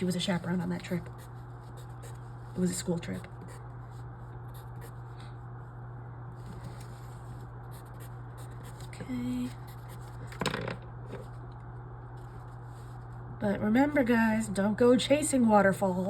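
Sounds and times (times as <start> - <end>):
steady low hum: 0.0 - 16.0
paper rustle: 6.4 - 7.5.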